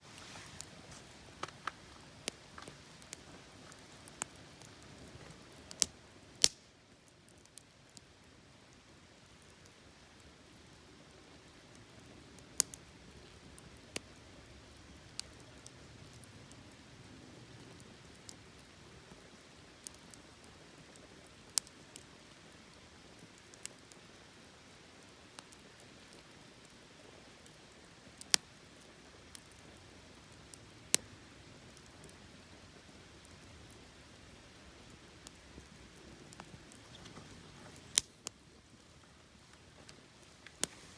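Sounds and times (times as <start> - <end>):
fire hissing: 0.0 - 6.6, 29.0 - 40.9
campfire crackling and popping: 0.0 - 40.9.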